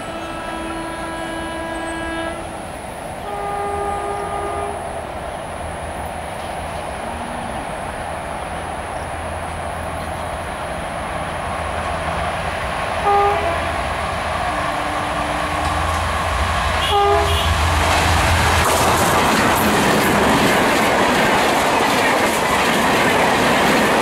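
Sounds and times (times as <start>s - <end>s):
locomotive horn blasts: 0.0s - 5.0s, 13.0s - 13.8s, 14.4s - 16.0s, 16.8s - 18.0s
train wheels clattering: 14.3s - 24.0s.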